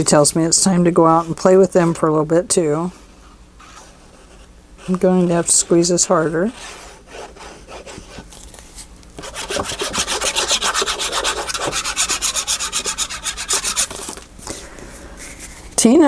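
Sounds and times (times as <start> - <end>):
rubbing strokes on paper: 3.2 - 8.2, 9.2 - 14.2.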